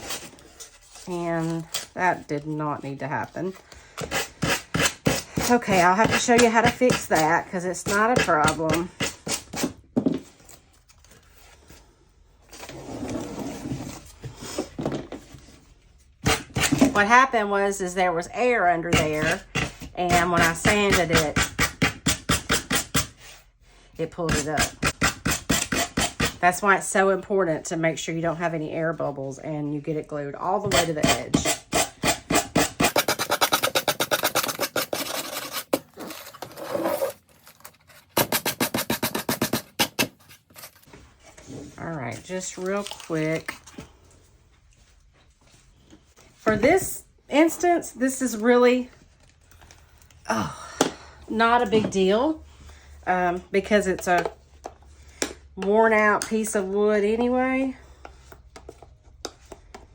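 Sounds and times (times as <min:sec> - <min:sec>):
scraping and rubbing on wood: 0:30.7 - 0:43.5
sandpaper scratching on wood: 0:32.3 - 0:35.8.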